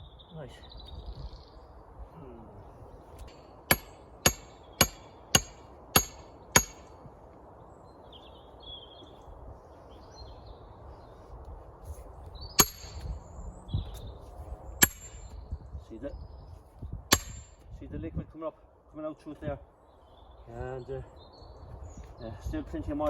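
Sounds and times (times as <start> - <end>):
sledgehammer striking steel wedge: 3.2 - 7.0, 12.6 - 13.1, 14.8 - 15.3, 17.1 - 17.6.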